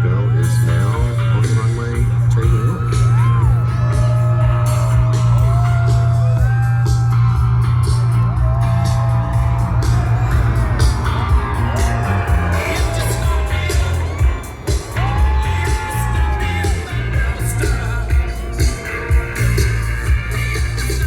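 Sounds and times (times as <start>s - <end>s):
loud music with heavy bass: 0.0s - 21.0s
person singing: 11.5s - 21.0s.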